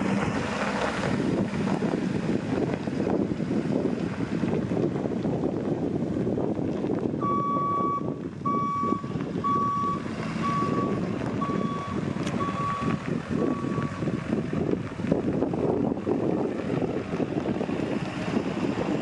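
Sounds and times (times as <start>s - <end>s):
wind noise on microphone: 0.0s - 19.0s
truck reversing alarm beeping: 7.2s - 14.0s.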